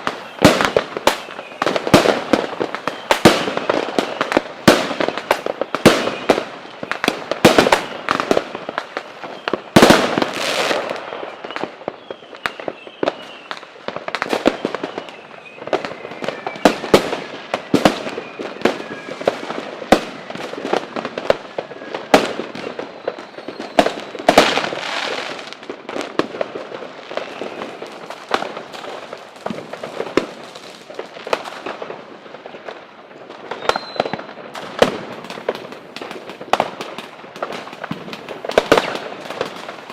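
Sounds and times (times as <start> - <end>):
fireworks crackling: 0.0 - 39.9
fireworks exploding: 0.0 - 39.9
faint falling whistle: 11.1 - 13.6, 14.4 - 16.9, 33.6 - 34.3.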